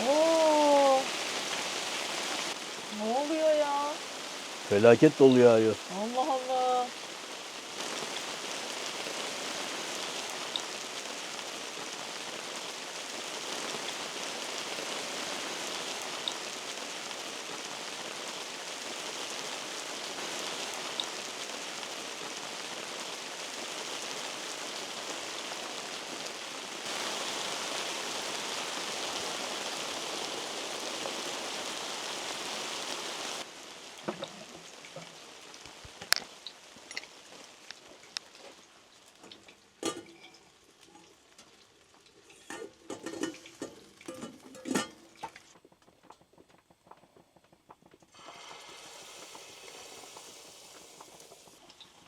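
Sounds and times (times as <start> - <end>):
heavy hail and rain pelting: 0.0 - 52.0.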